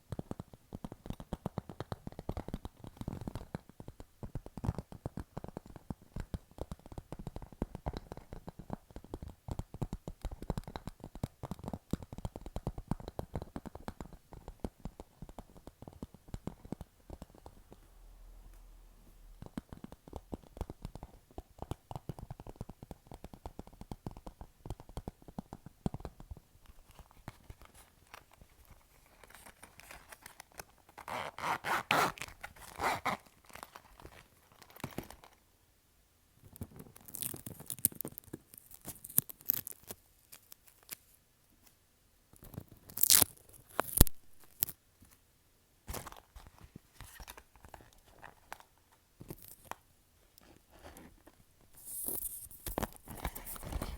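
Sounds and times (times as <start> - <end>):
fingertips tapping on plastic pouch: 0.0 - 17.8, 19.4 - 35.4.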